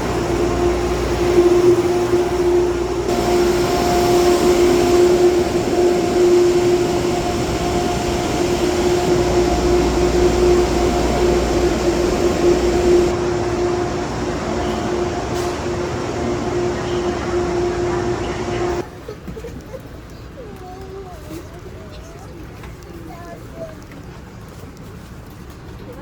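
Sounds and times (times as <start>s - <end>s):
train engine droning: 0.0s - 18.9s.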